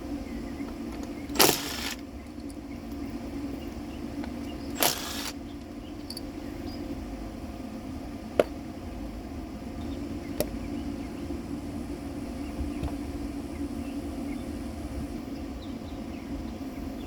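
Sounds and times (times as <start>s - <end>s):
sharp clicks: 1.0s - 2.6s, 4.2s - 5.4s.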